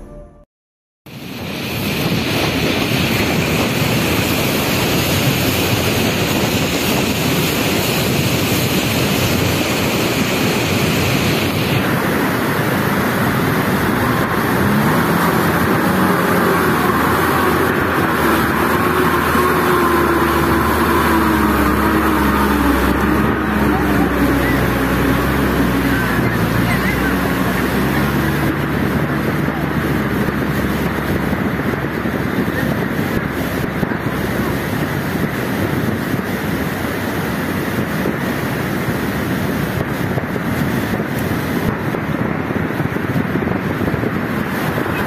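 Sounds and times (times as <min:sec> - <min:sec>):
mudflow rushing roar: 0:01.1 - 0:45.0
engine revving: 0:03.1 - 0:42.2.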